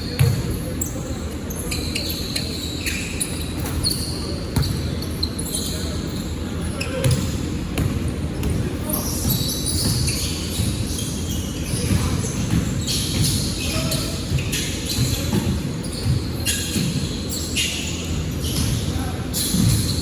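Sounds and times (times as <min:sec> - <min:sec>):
court noise: 0:00.0 - 0:20.0
basketball bouncing on court: 0:00.1 - 0:00.6, 0:04.6 - 0:04.9, 0:06.9 - 0:11.1, 0:11.7 - 0:17.2, 0:18.1 - 0:20.0.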